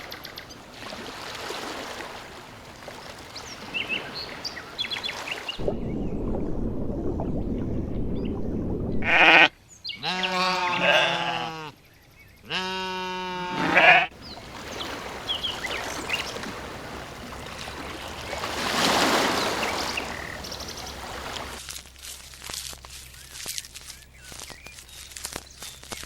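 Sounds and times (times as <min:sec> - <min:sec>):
sheep or goat bleating: 0:09.0 - 0:11.8, 0:12.4 - 0:14.1.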